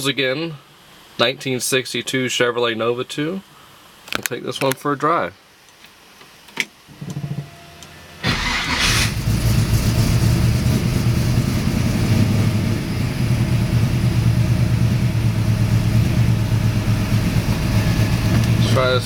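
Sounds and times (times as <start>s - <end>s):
car engine starting and idling: 7.8s - 19.0s
car engine cranking: 8.2s - 19.0s.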